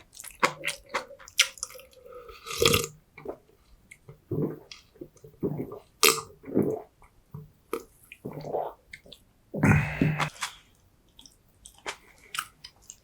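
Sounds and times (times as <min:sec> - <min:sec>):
person chewing food: 0:00.0 - 0:04.0, 0:09.8 - 0:13.0.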